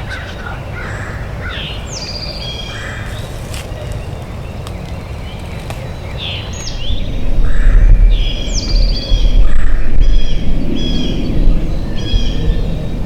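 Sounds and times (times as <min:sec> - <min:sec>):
low rumble on microphone: 0:02.6 - 0:13.0.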